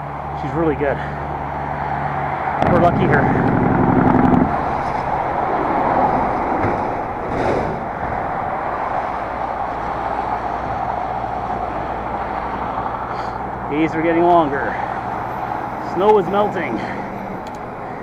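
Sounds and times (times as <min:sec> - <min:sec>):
bike tyres rushing on snow: 0:00.4 - 0:17.1.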